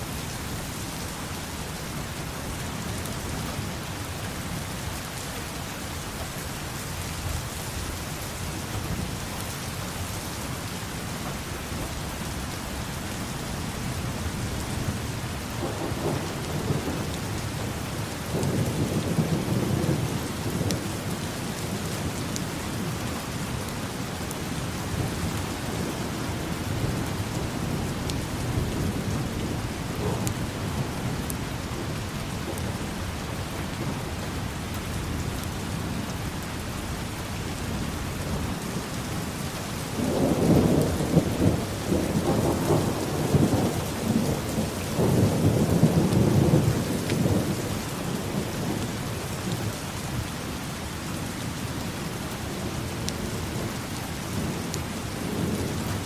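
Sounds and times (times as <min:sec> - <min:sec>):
steady rain falling: 0:00.0 - 0:56.0
thunder rumbling: 0:14.8 - 0:49.0.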